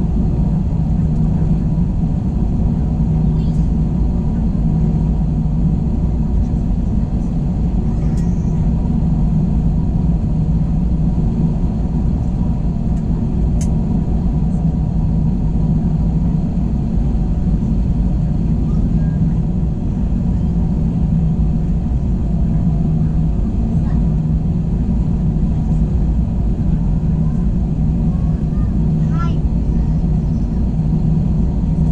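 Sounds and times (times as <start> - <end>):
airliner cabin drone: 0.0 - 31.9
faint tick: 13.0 - 13.7.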